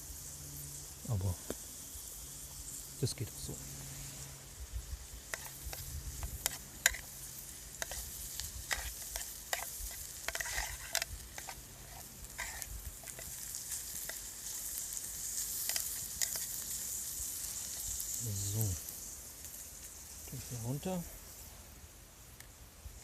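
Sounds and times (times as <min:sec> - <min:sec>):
food sizzling in a pan: 0:00.0 - 0:23.0
utensil scraping a pan: 0:05.3 - 0:16.7.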